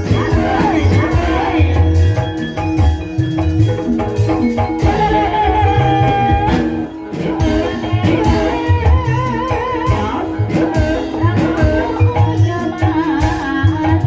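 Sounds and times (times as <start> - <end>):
gamelan ensemble music: 0.0 - 14.0
high melodic line with vibrato: 0.0 - 14.0
pitched percussion notes: 0.0 - 14.0.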